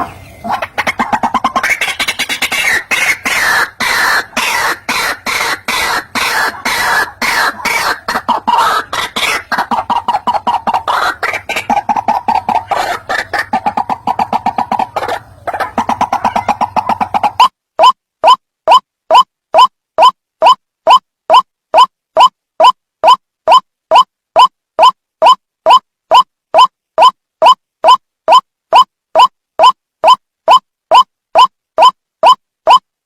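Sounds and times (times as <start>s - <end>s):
waterhen calling harsh notes: 0.0s - 19.2s.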